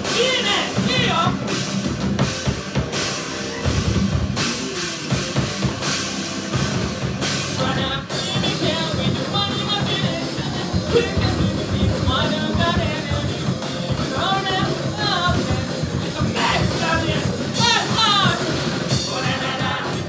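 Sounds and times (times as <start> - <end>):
person singing: 0.0 - 1.6, 7.5 - 20.0
distorted guitars: 0.0 - 20.0
heavy rock band playing: 0.0 - 20.0
pounding drum kit: 0.0 - 20.0.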